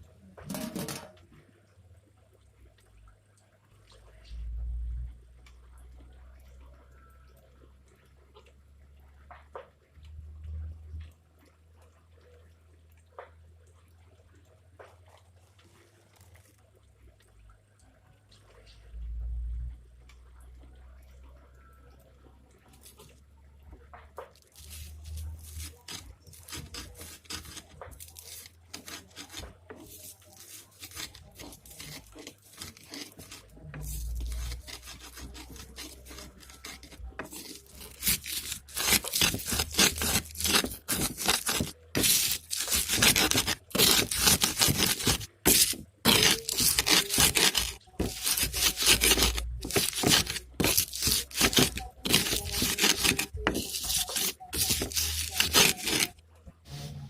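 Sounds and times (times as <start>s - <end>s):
hand scraping strokes: 24.5s - 57.0s.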